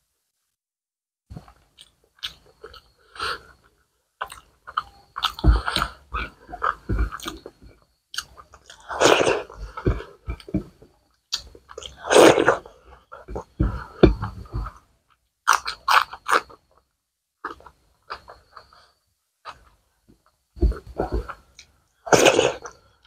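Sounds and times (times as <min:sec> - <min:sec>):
chewing with wet mouth sounds: 0:04.2 - 0:10.7, 0:13.2 - 0:16.7.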